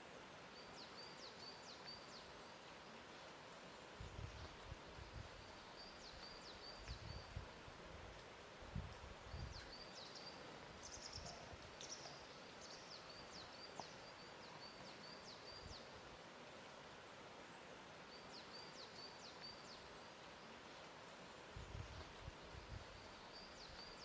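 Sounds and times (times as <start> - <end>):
steady soft hiss: 0.0 - 24.0
small birds chirping: 3.7 - 7.4, 9.2 - 16.2, 21.6 - 24.0.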